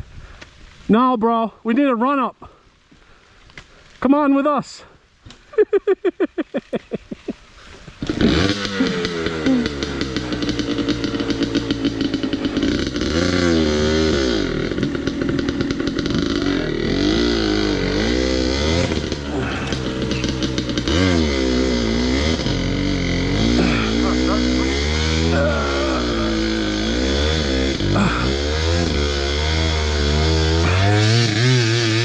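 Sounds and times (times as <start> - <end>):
dirt bike engine revving: 8.0 - 32.0.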